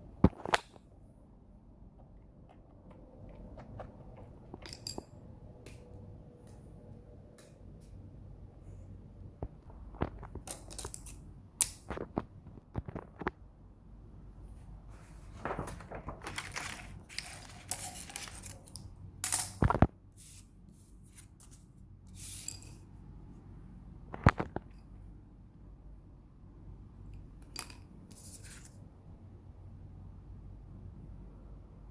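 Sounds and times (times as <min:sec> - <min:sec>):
rustling: 0:14.9 - 0:19.6.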